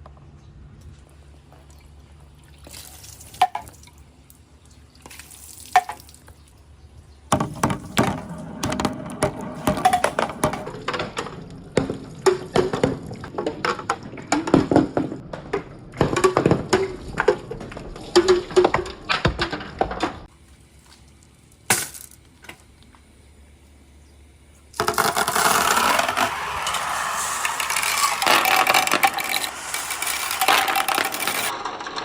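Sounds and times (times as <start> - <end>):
marbles rolling and clattering: 7.3 - 12.9, 24.8 - 32.0.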